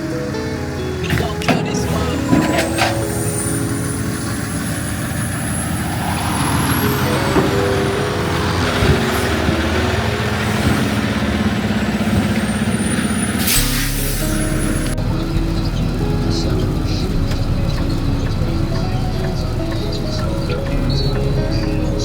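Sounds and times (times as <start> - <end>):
truck engine running: 0.0 - 22.0
high whine rising in pitch: 1.1 - 21.9
air brake hiss: 13.1 - 14.8.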